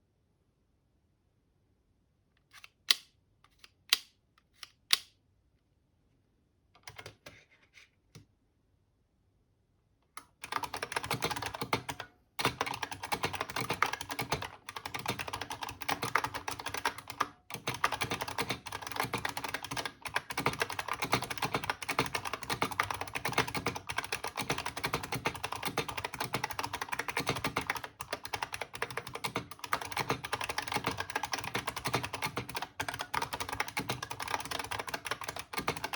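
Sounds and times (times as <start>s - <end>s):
mechanical keyboard typing clicks: 6.8s - 7.2s, 10.2s - 35.9s.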